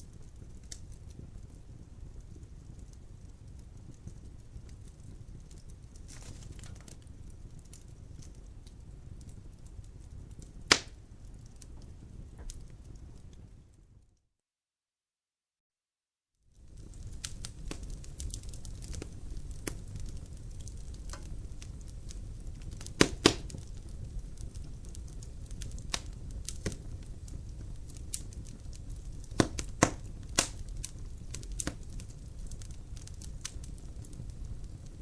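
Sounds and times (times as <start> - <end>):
low rumble of flames: 0.0 - 14.1, 16.5 - 35.0
sharp pops of burning wood: 5.4 - 12.6, 16.7 - 35.0.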